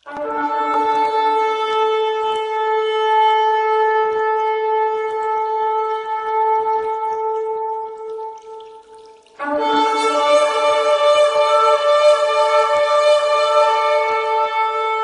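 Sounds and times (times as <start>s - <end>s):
shofar blast: 9.4s - 15.0s.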